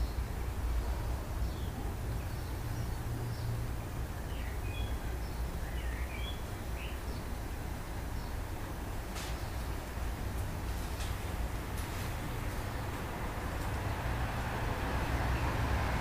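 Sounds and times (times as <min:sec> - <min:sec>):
faint bird chirps: 0:04.3 - 0:07.3.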